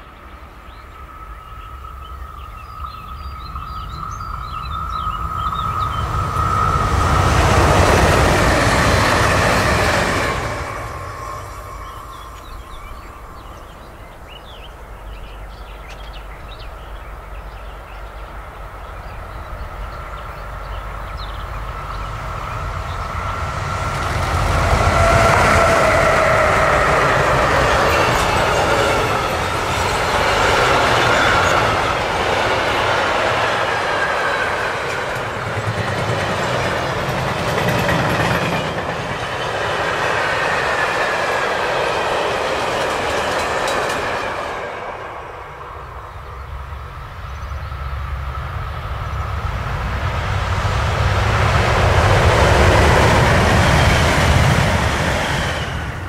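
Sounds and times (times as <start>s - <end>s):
electric train passing: 0.0s - 56.0s
freight train wheels clattering: 22.0s - 45.1s.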